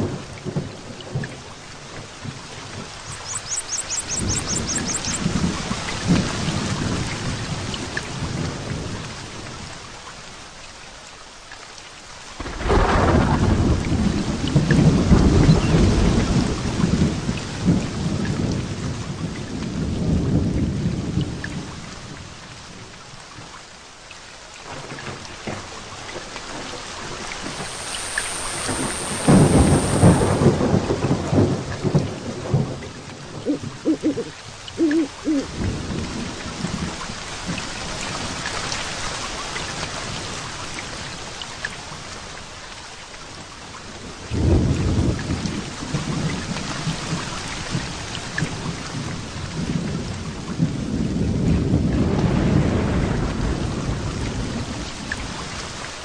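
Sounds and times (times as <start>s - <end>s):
heavy rain: 0.0s - 56.0s
thunder: 12.4s - 21.8s, 26.5s - 34.0s, 44.2s - 55.5s.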